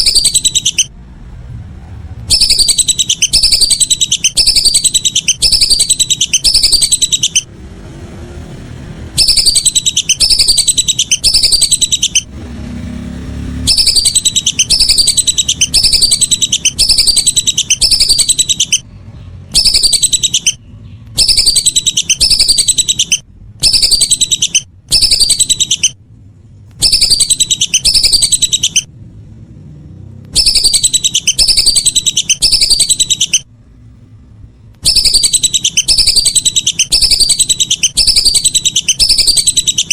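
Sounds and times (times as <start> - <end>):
whistling duck calls: 0.0 - 0.9, 2.3 - 7.5, 9.2 - 12.3, 13.6 - 18.8, 19.6 - 20.6, 21.2 - 26.0, 26.8 - 28.9, 30.4 - 33.4, 34.8 - 39.9.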